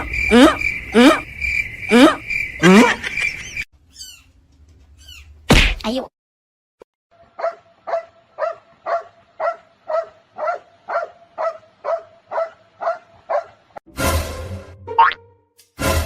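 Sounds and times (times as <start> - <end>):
dog barking: 7.3 - 13.6.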